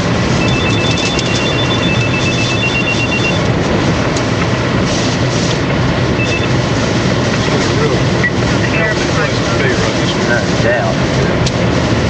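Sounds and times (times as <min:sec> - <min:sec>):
strong wind and rain: 0:00.0 - 0:12.0
vehicle running: 0:00.0 - 0:12.0
rapid electronic beeping chime: 0:00.4 - 0:03.4, 0:06.2 - 0:06.5.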